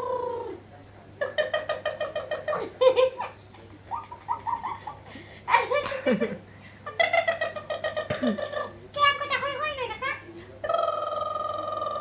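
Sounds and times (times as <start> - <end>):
high-pitched cooing squeals: 10.7 - 12.0.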